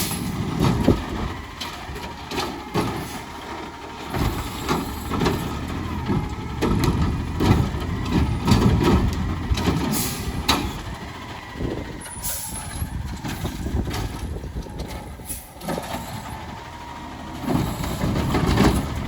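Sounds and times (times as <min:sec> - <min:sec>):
garbage truck engine rumble: 0:00.0 - 0:19.0
knocks and clanks: 0:04.0 - 0:10.9, 0:17.4 - 0:19.0
air brake hiss: 0:12.2 - 0:12.7, 0:15.2 - 0:15.6.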